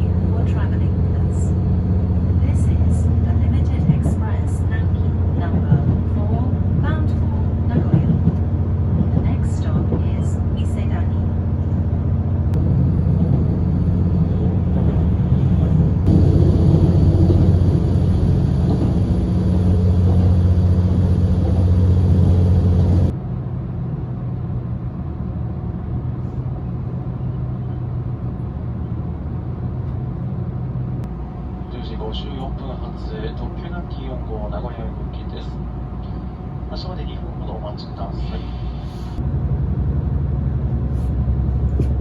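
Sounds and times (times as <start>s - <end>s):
diesel train engine idling: 0.0s - 42.0s.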